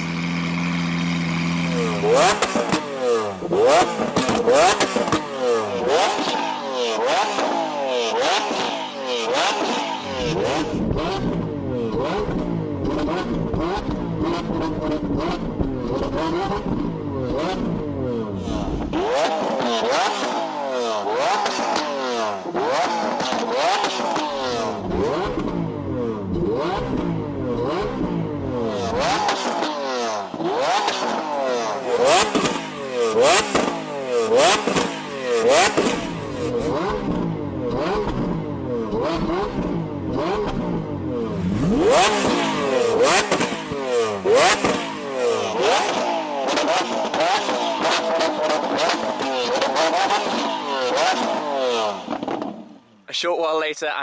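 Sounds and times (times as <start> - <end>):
car engine revving: 0.0 - 53.1
exhaust pops and bangs: 3.7 - 5.3, 10.7 - 17.8, 32.1 - 40.8, 41.9 - 45.0, 52.0 - 52.7.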